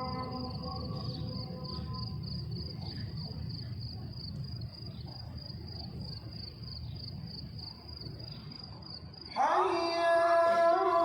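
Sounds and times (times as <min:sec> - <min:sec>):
man chanting call to prayer: 0:00.0 - 0:02.2, 0:09.4 - 0:11.0
crickets chirping: 0:00.0 - 0:11.0.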